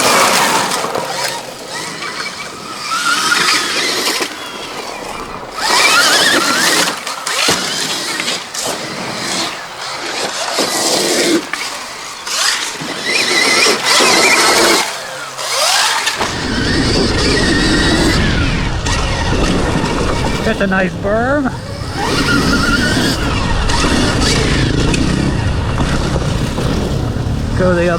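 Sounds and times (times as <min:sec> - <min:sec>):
drivetrain and tyres on dirt: 0:00.0 - 0:27.9
electric motor whining: 0:00.0 - 0:27.9
low rumble: 0:16.2 - 0:27.9.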